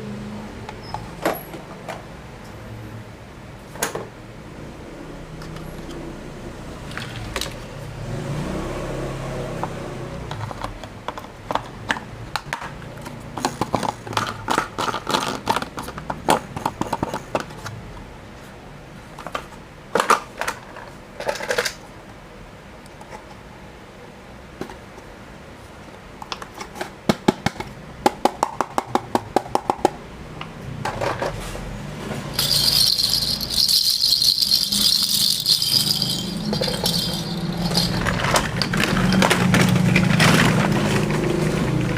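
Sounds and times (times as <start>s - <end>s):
plastic toys clattering: 6.9s - 7.6s, 10.3s - 17.7s, 19.2s - 21.8s, 32.3s - 41.9s.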